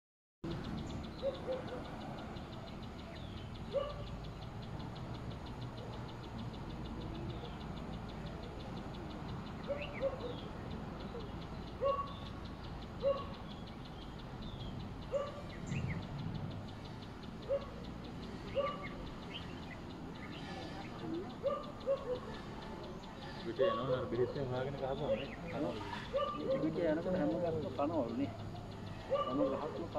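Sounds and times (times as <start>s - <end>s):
birds chirping: 0.4s - 29.9s.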